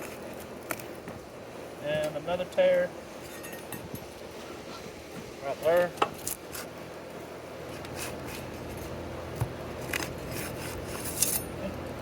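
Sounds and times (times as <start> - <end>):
shingle tearing: 7.6 - 11.6.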